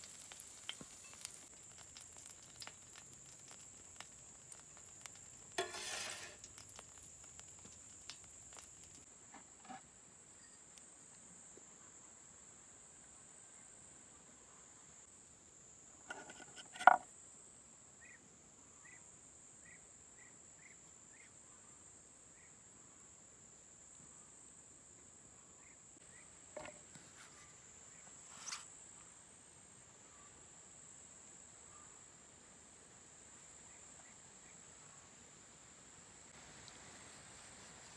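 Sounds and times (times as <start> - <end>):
insect chirring: 0.0 - 9.1
cookware knocks and clatters: 5.6 - 6.4.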